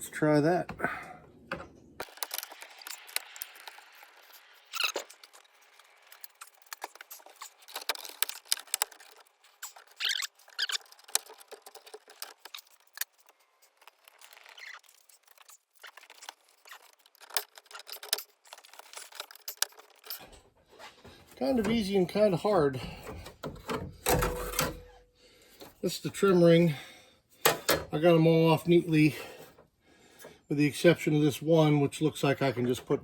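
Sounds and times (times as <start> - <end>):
plastic clips clicking and snapping: 1.5 - 3.9, 6.2 - 14.6
plastic squeaks: 1.5 - 25.0.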